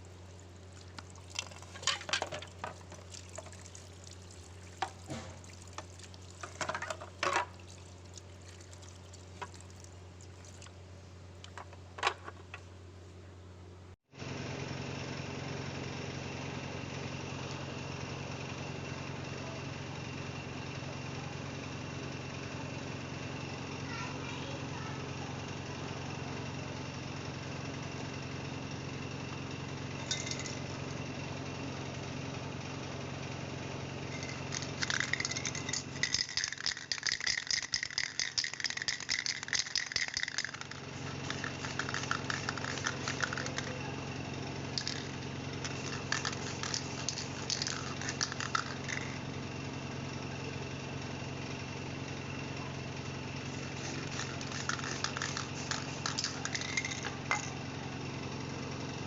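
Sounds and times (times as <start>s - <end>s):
steady low hum: 0.0s - 14.0s, 33.6s - 58.3s
spray can ball rattling: 0.7s - 10.7s, 30.0s - 30.6s, 34.1s - 43.9s, 44.6s - 49.2s, 53.5s - 57.6s.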